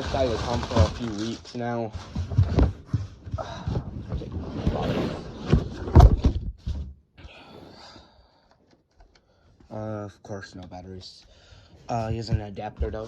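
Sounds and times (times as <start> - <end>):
packaging rustling: 0.0 - 2.8
knocks and bumps: 0.0 - 6.9, 11.9 - 13.0.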